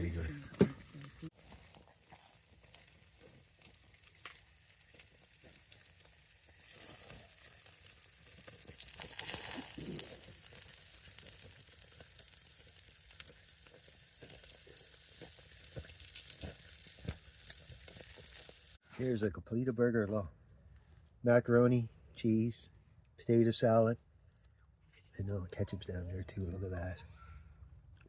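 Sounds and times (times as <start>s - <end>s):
patties sizzling on a grill: 0.0s - 18.8s.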